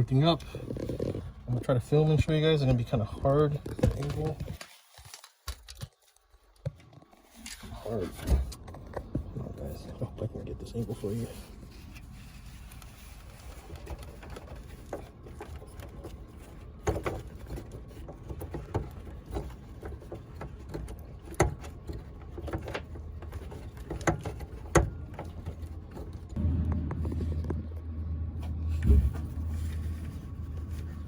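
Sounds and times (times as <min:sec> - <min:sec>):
steady low rumble: 0:25.0 - 0:31.0.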